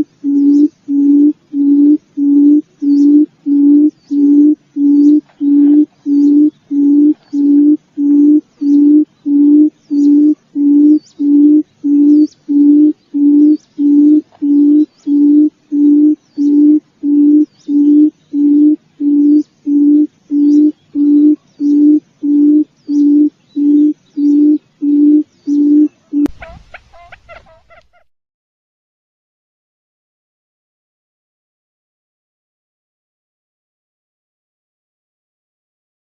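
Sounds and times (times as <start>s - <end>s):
faint high chirps: 0.0s - 27.1s
quail low hooting call: 0.0s - 28.1s.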